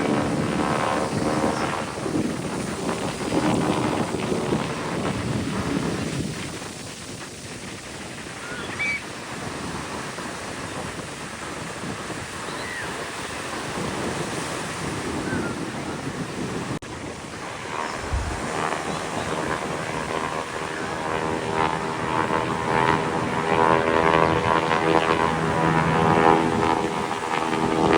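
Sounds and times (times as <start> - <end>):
aircraft engine: 0.0 - 27.9
wind buffeting microphone: 0.0 - 27.9
ocean surf breaking: 11.3 - 23.5.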